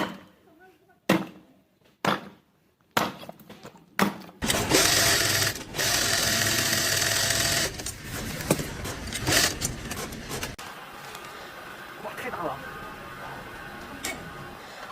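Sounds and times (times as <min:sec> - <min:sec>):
small motorised machine buzzing: 0:04.4 - 0:08.0.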